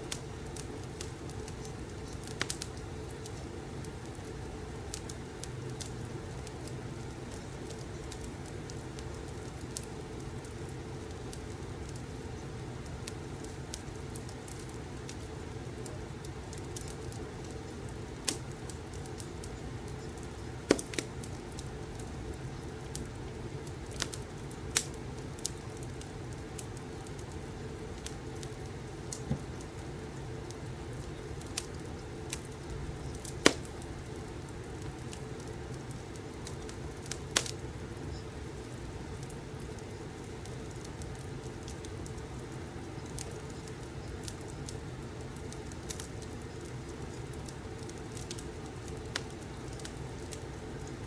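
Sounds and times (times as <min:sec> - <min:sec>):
fire pops and snaps: 0:00.0 - 0:51.0
fireplace low rushing: 0:29.2 - 0:29.7.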